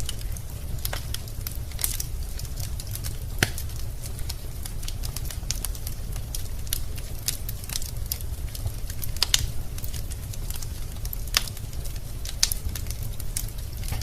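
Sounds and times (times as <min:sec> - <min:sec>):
burning logs crackling and popping: 0:00.0 - 0:14.0
low rumble of flames: 0:00.0 - 0:14.0.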